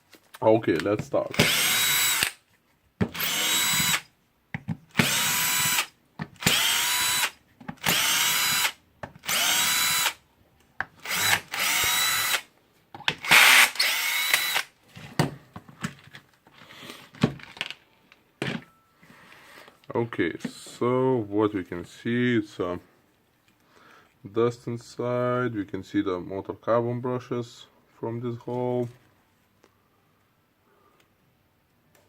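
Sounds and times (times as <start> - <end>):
electric screwdriver whining: 1.3 - 2.4, 3.1 - 4.1, 4.9 - 10.2, 11.0 - 12.5, 13.2 - 14.7.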